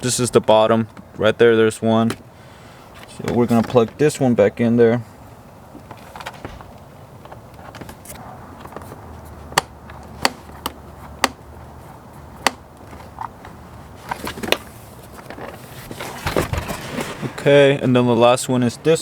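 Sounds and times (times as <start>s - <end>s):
handling rustle: 2.9s - 4.0s, 5.8s - 17.5s.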